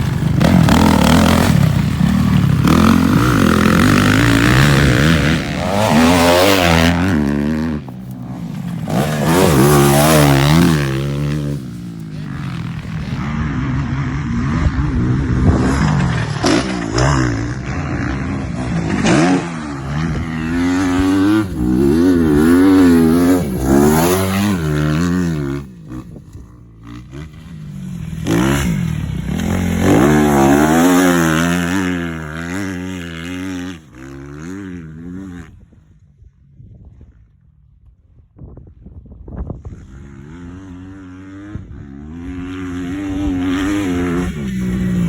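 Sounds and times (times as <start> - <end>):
dirt bike engine revving: 0.0 - 35.6, 39.7 - 45.0.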